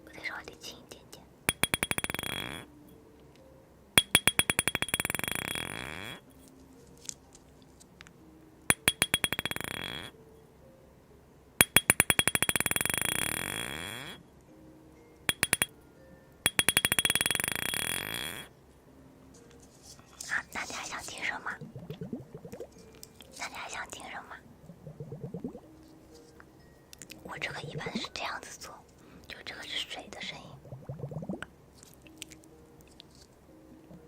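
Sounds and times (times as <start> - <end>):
hard object bouncing and ringing: 1.5 - 2.7, 4.0 - 6.1, 8.7 - 10.1, 11.6 - 14.0, 15.3 - 15.8, 16.5 - 18.5.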